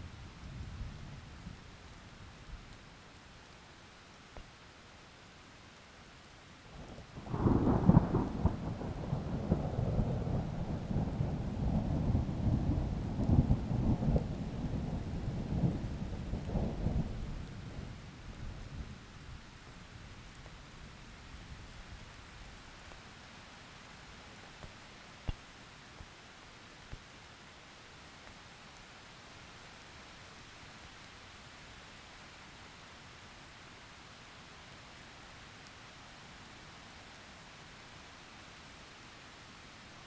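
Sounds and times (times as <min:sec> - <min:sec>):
steady rain hiss: 0:00.0 - 0:40.0
thunder rumbling and cracking: 0:07.2 - 0:18.0.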